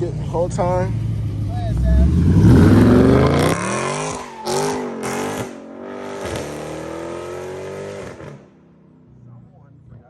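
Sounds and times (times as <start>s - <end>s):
car engine revving hard: 1.3s - 8.5s.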